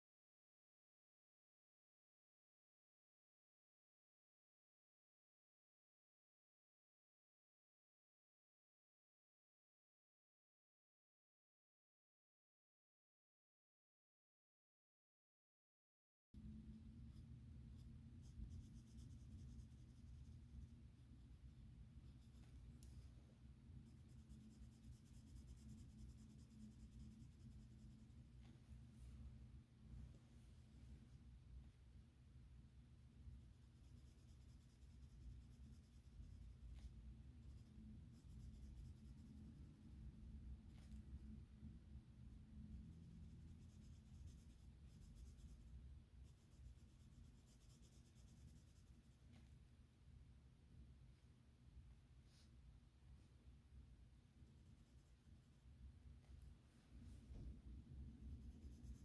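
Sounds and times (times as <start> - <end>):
pencil scratching on paper: 17.1 - 20.8, 23.8 - 28.5, 33.5 - 39.7, 42.7 - 49.5, 58.1 - 59.0.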